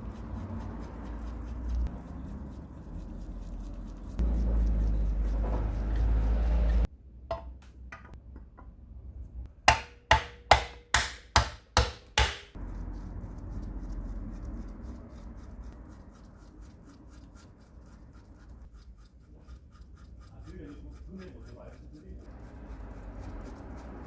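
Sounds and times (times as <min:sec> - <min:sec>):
sharp knocks: 0:09.7 - 0:12.6.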